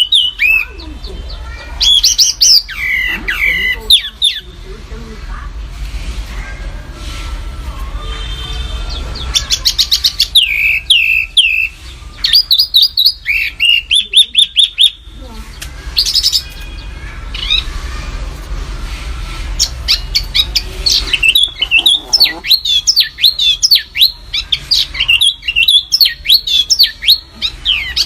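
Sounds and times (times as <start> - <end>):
songbird singing: 0.0 - 4.7, 8.2 - 17.8, 19.6 - 28.0.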